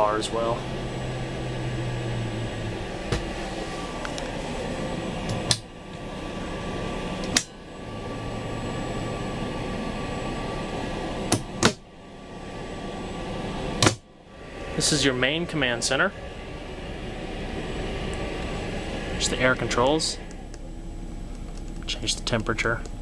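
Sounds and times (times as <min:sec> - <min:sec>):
air vents rushing: 0:00.0 - 0:23.0
low hum: 0:00.0 - 0:23.0
sharp clicks: 0:21.3 - 0:23.0.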